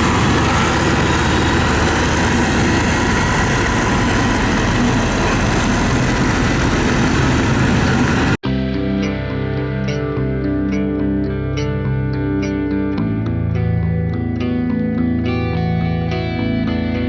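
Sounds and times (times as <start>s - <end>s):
diesel engine running: 0.0s - 8.4s.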